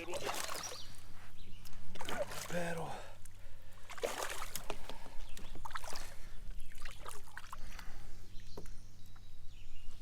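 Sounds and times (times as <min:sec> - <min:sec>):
water splashing and dripping: 0:00.0 - 0:00.8, 0:01.9 - 0:02.8, 0:03.8 - 0:07.8.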